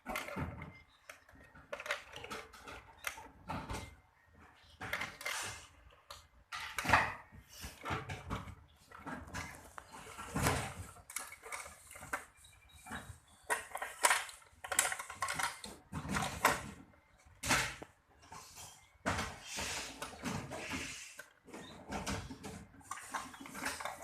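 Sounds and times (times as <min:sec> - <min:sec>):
plastic toy pieces handled: 0:08.9 - 0:16.8.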